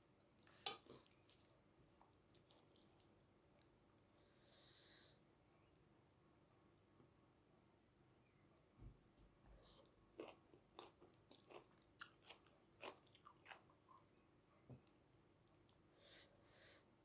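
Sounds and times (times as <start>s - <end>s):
chewing and crunching: 9.6s - 14.0s.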